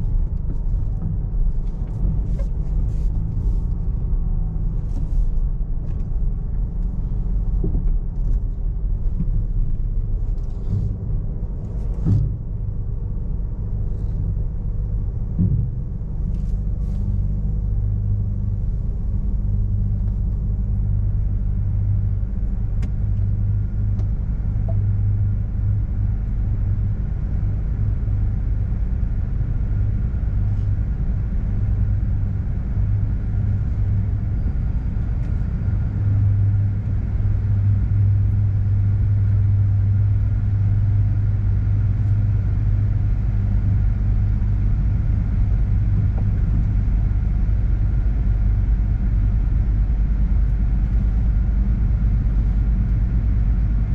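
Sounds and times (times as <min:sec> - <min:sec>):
car wash machinery rumbling: 0:32.6 - 0:53.9.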